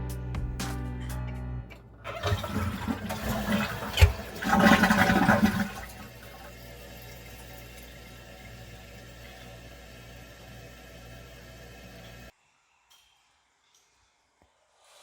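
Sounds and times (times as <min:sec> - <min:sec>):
toilet flushing: 0:01.7 - 0:12.3.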